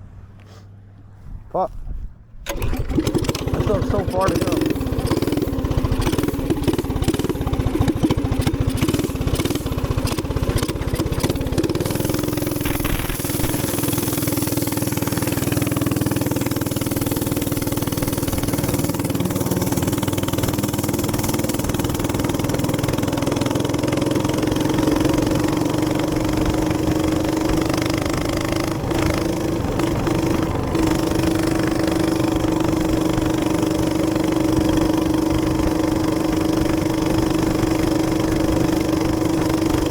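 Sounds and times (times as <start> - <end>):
small gas engine running: 2.4 - 39.9.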